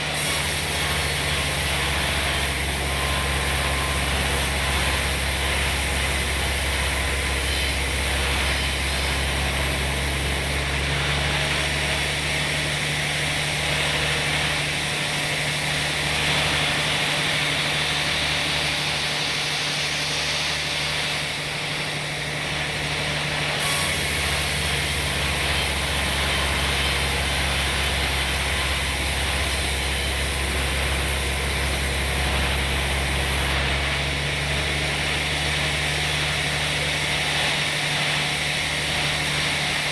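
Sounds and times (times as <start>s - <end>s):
saw hiss: 0.0s - 10.7s, 23.4s - 33.7s.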